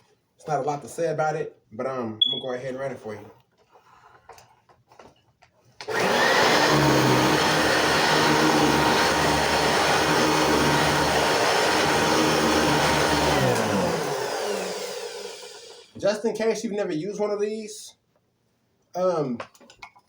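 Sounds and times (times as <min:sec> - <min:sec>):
vacuum cleaner motor running: 0:05.8 - 0:16.0.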